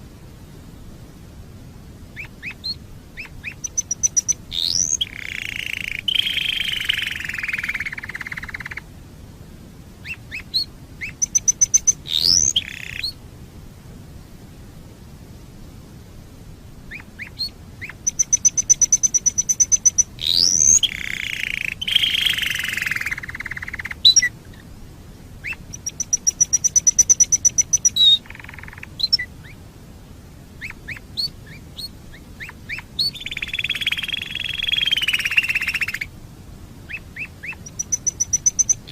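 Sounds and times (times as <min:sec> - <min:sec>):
canary singing: 0:02.2 - 0:08.8, 0:10.0 - 0:13.2, 0:16.9 - 0:24.3, 0:25.4 - 0:29.6, 0:30.6 - 0:36.1, 0:36.9 - 0:38.9.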